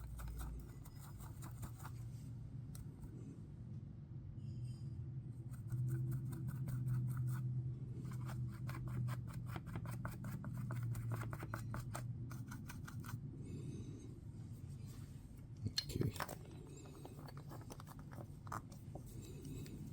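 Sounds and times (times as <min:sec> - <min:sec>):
brush scratching in a mould: 0:00.0 - 0:02.3, 0:05.4 - 0:13.2, 0:16.3 - 0:19.9.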